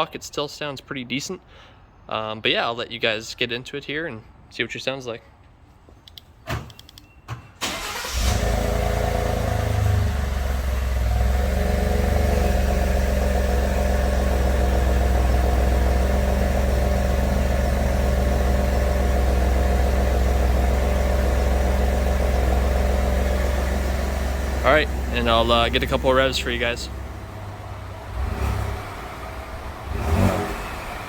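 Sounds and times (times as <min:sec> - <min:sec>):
clicks: 0:06.0 - 0:07.1
truck engine starting and idling: 0:07.6 - 0:31.0.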